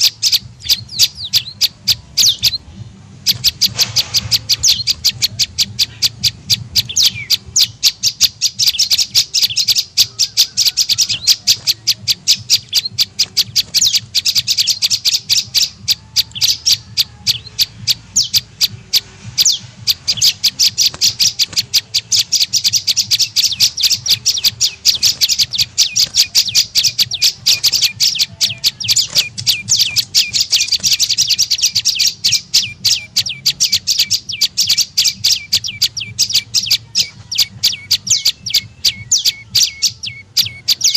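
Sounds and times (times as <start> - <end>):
sharp high bird chirps: 0.0 - 40.9.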